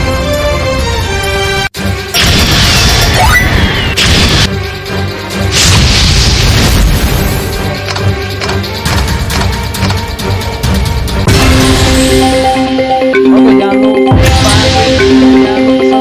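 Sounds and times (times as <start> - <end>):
game music melody: 0.0 - 16.0.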